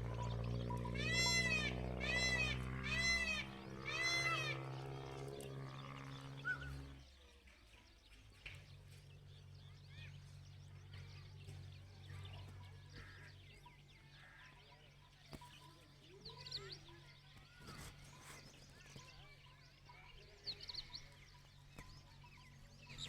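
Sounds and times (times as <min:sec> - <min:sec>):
low steady hum: 0:00.0 - 0:17.5
faint chirping: 0:00.0 - 0:23.0
animal crying: 0:00.1 - 0:05.4.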